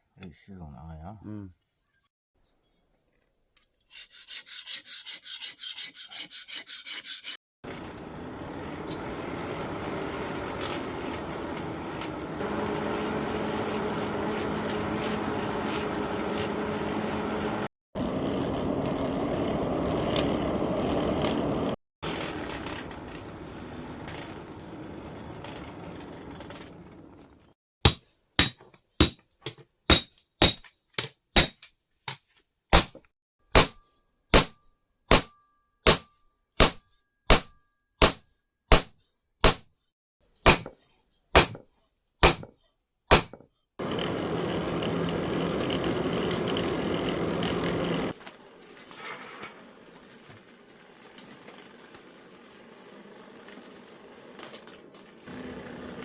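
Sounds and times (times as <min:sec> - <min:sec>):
loud steady machine noise: 0:07.7 - 0:25.7, 0:43.8 - 0:48.2, 0:55.3 - 0:56.0.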